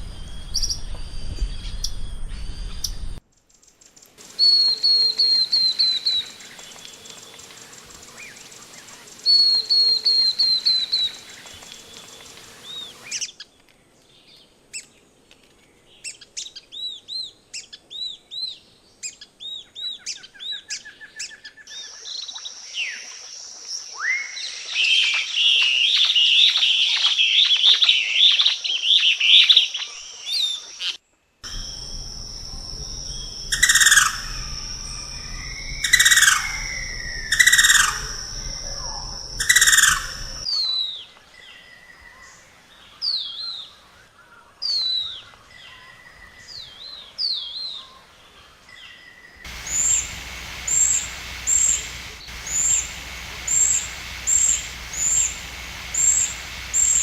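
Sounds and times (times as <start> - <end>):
steady high whine: 0.0 - 3.2, 4.2 - 13.1, 31.4 - 40.5, 49.5 - 57.0
birds chattering: 4.2 - 13.1, 31.5 - 40.4, 49.5 - 57.0
birds chirping: 4.2 - 13.2, 31.4 - 40.5, 49.5 - 57.0
loud bird calls: 4.2 - 13.2, 31.5 - 40.5, 49.5 - 57.0.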